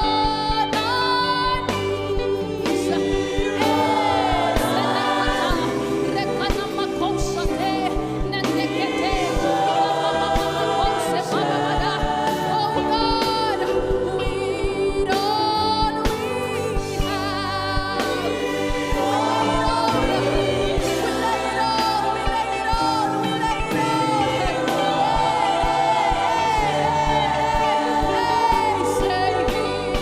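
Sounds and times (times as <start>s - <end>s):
gospel band playing: 0.0s - 30.0s
choir singing: 0.7s - 30.0s.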